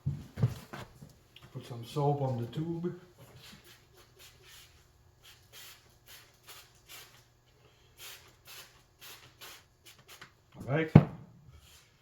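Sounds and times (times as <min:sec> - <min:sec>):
soft short hissing strokes: 0:03.4 - 0:10.4.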